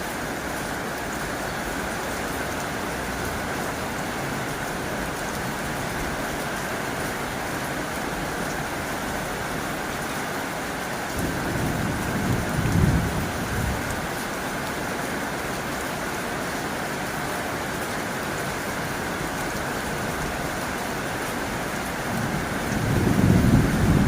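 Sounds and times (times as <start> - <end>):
rain on a tin roof: 0.0 - 24.0
thunder rumbling: 11.1 - 14.1, 21.9 - 24.0.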